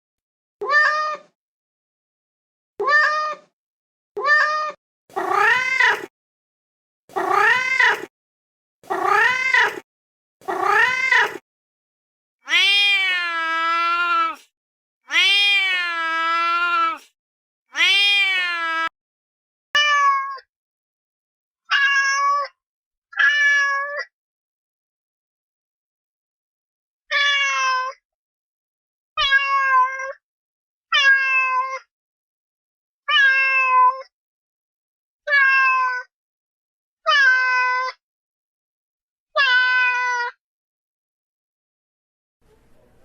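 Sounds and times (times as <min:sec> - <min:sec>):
cat meowing: 0:00.6 - 0:01.4, 0:02.8 - 0:03.5, 0:04.2 - 0:06.1, 0:07.1 - 0:08.1, 0:08.8 - 0:09.8, 0:10.4 - 0:11.4, 0:12.4 - 0:14.4, 0:15.1 - 0:17.0, 0:17.8 - 0:18.9, 0:19.8 - 0:20.4, 0:21.7 - 0:22.5, 0:23.2 - 0:24.0, 0:29.2 - 0:30.2, 0:30.9 - 0:31.8, 0:33.1 - 0:34.1, 0:35.3 - 0:36.1, 0:39.4 - 0:40.3.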